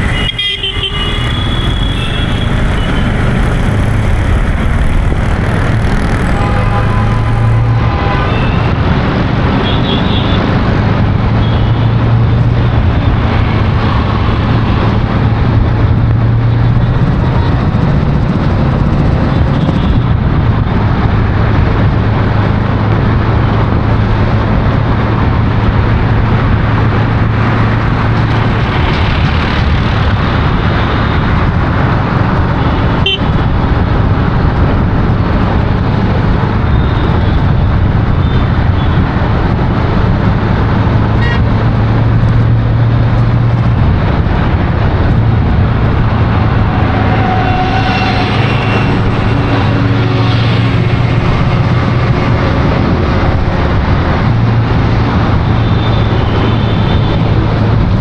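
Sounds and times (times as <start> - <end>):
faint horn toots: 0.0 - 8.7
low engine drone: 0.0 - 9.2, 39.5 - 58.0
road traffic noise: 0.0 - 58.0.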